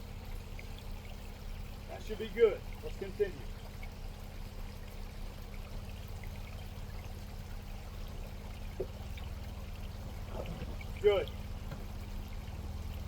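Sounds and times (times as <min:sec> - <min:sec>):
truck engine running low: 0:03.7 - 0:13.0.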